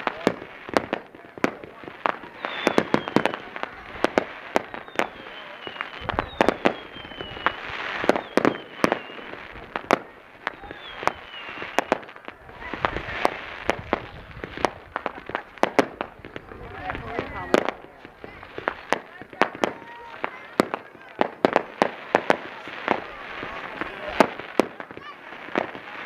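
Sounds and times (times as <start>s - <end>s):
fireworks crackling: 0.0s - 26.0s
fireworks shells bursting: 0.0s - 26.0s
falling whistles: 2.3s - 3.4s, 4.6s - 9.4s, 10.4s - 12.0s.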